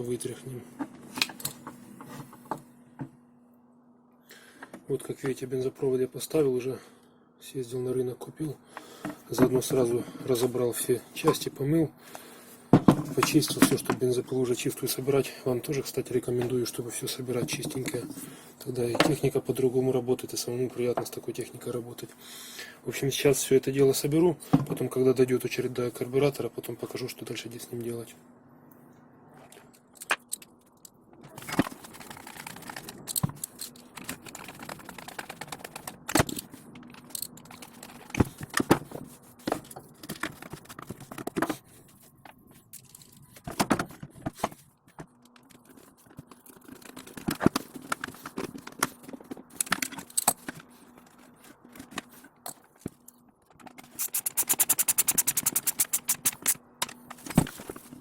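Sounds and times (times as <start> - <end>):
metal and plastic parts clicking: 29.8 - 41.6, 44.9 - 57.8
fast run of clicks: 31.6 - 38.7, 53.8 - 57.4.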